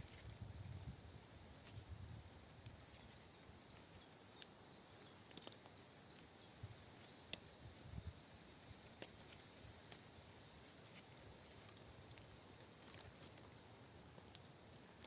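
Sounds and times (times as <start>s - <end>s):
small bird chirping: 2.4s - 8.1s.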